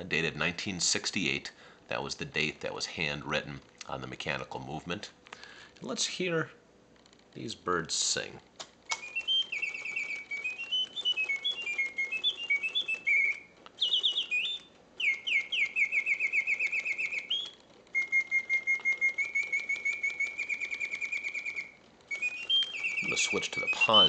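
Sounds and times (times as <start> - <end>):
mechanical singing bird whistle: 8.9 - 24.0.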